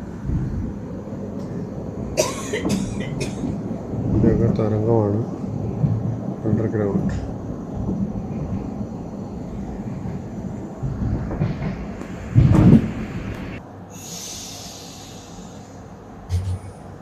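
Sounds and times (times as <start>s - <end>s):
train wheels rumbling on track: 0.0s - 17.0s
hiss: 11.9s - 16.0s
loud thump: 16.3s - 16.8s.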